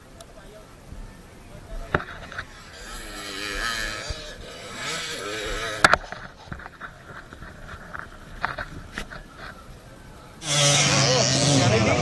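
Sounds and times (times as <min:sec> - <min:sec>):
motocross bikes revving: 0:01.7 - 0:09.4, 0:10.4 - 0:12.0.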